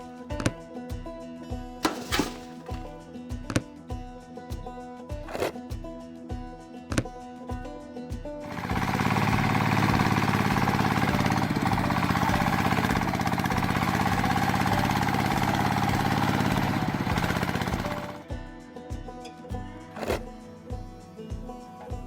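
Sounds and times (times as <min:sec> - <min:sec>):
engine running with fast pulsing beat: 0:08.4 - 0:18.2, 0:20.0 - 0:20.3.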